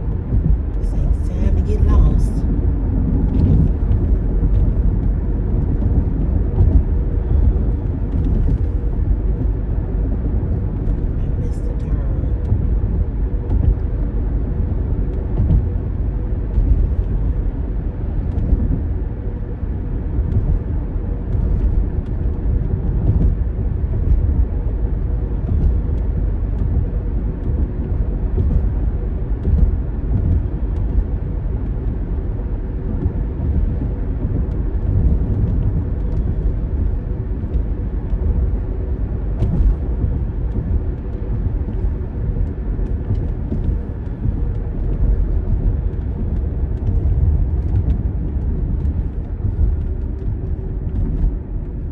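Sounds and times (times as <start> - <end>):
faint steady hum: 0.0 - 9.4
car engine rumble: 0.0 - 51.9
road noise: 0.0 - 51.9.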